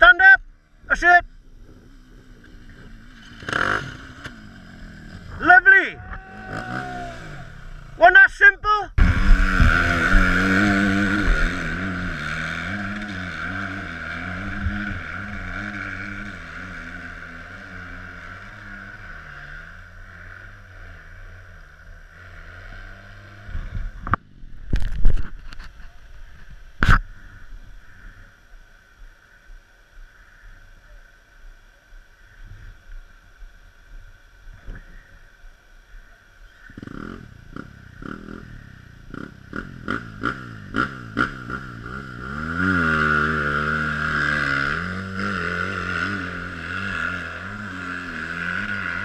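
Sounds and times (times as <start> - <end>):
dirt bike engine revving: 0.0 - 24.2, 36.6 - 49.0.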